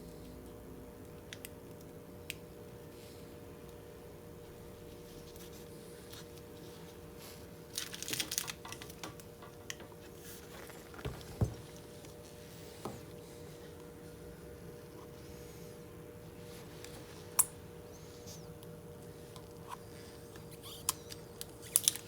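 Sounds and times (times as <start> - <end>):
faint steady hum: 0.0 - 22.0
film crackling and rustling: 5.0 - 13.9, 20.9 - 22.0.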